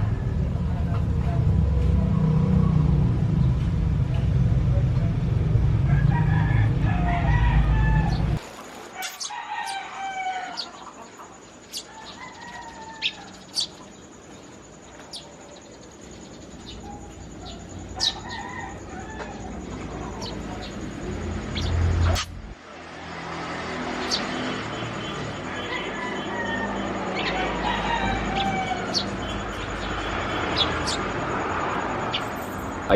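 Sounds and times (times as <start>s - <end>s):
loud low rumble: 0.0s - 8.4s
rooster crowing: 5.8s - 13.7s, 16.8s - 21.7s, 23.1s - 31.2s
small birds chirping: 7.9s - 22.6s, 23.6s - 32.9s
chickens clucking: 9.0s - 14.0s.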